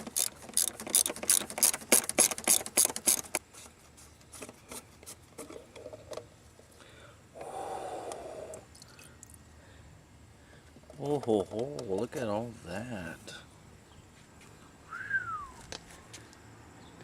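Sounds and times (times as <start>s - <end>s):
socket and ratchet clicking: 0.0s - 3.4s.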